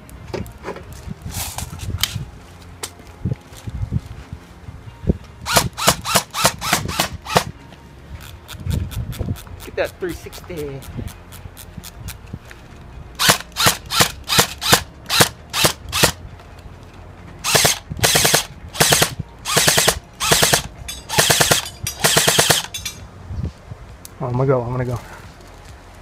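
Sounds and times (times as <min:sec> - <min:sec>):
airsoft gun full-auto bursts: 0:05.5 - 0:07.5, 0:13.2 - 0:16.2, 0:17.5 - 0:22.7.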